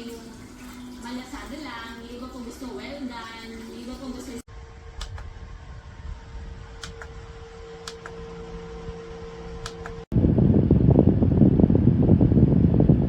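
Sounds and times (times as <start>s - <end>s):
fan air buffeting microphone: 0.0s - 13.0s
fan humming with whine: 0.0s - 13.0s
light clicks: 5.0s - 5.3s, 6.8s - 7.2s, 7.8s - 8.2s.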